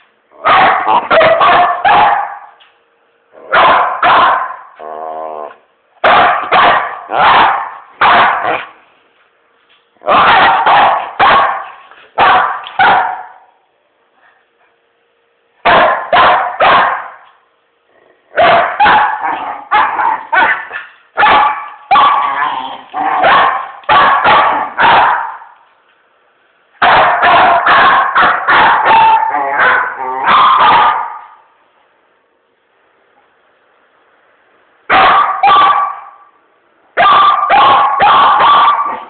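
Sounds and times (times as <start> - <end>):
dog barking angrily: 0.4 - 2.6, 3.4 - 4.8, 6.0 - 8.8, 10.0 - 13.5, 15.6 - 17.2, 18.3 - 25.6, 26.8 - 31.4, 34.9 - 36.2, 37.0 - 39.0.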